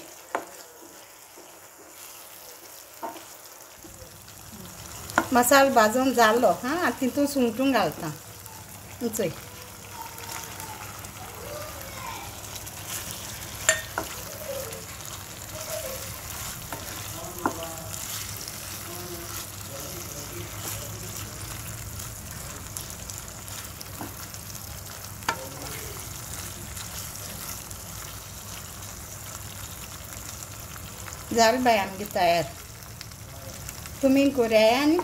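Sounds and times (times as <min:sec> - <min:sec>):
prawns sizzling in a pan: 0:00.0 - 0:35.0
wooden spatula knocking pan: 0:05.1 - 0:05.4.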